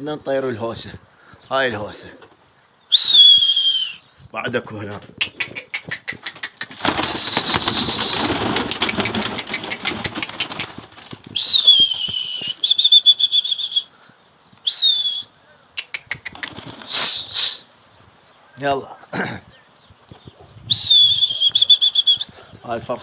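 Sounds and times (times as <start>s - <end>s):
person whistling: 2.9s - 4.0s, 11.4s - 13.9s, 14.6s - 15.3s, 20.7s - 22.3s
pigeons flapping wings: 5.2s - 13.4s, 16.0s - 17.5s.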